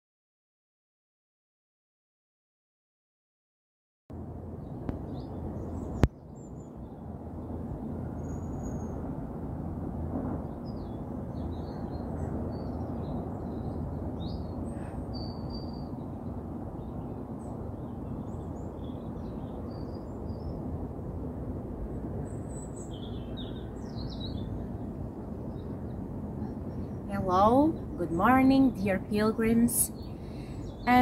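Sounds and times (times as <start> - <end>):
steady low background noise: 4.1 - 31.0
small birds chirping: 22.2 - 31.0.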